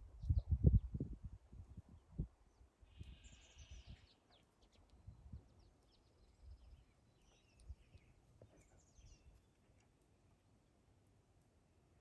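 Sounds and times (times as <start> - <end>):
small birds chirping and trilling: 2.0 - 9.9.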